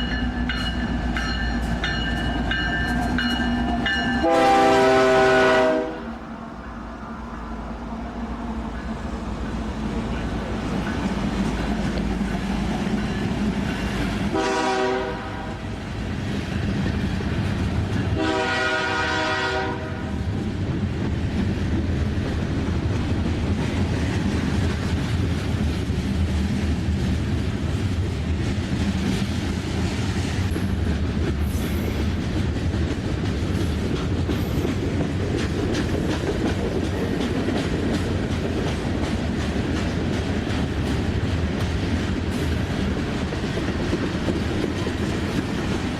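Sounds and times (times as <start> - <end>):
train rumbling past: 0.0 - 45.9
locomotive horn blasts: 4.0 - 6.2, 14.3 - 15.6, 18.2 - 20.2
wheels clicking over rail joints: 20.3 - 45.9.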